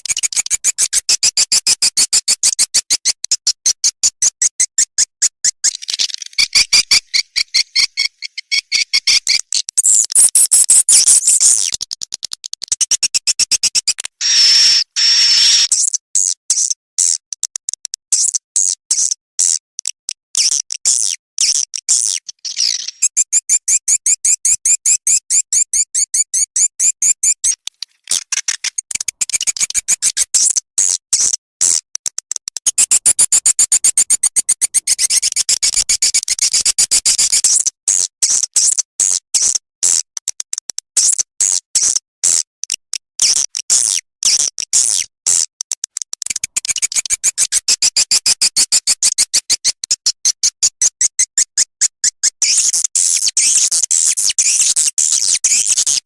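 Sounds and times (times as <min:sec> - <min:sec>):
fast dry clicks: 0:00.0 - 0:16.0, 0:16.6 - 0:18.4, 0:19.1 - 0:23.7, 0:27.2 - 0:56.0
high bird chirps and trills: 0:05.6 - 0:11.8, 0:22.1 - 0:24.2.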